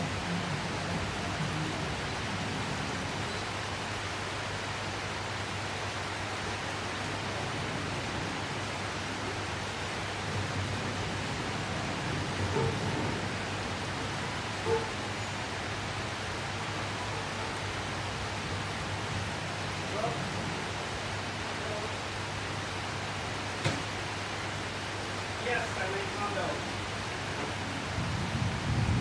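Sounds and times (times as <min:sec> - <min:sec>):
heavy rain falling: 0:00.0 - 0:29.0.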